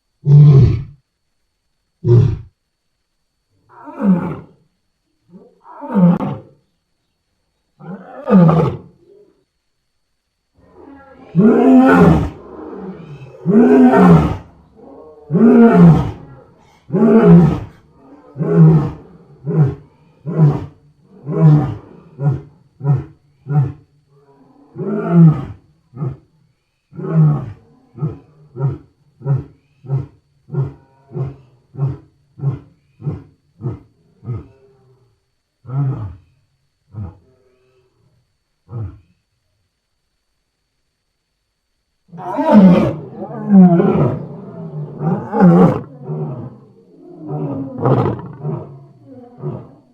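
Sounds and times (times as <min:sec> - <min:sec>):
lion roaring: 0:05.3 - 0:06.5, 0:07.8 - 0:09.4, 0:10.6 - 0:26.3, 0:42.1 - 0:49.9.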